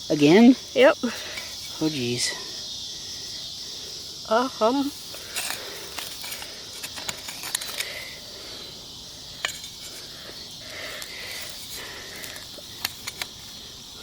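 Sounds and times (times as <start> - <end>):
insects hissing: 0.0 - 14.0
shovel digging in soil: 5.1 - 8.2.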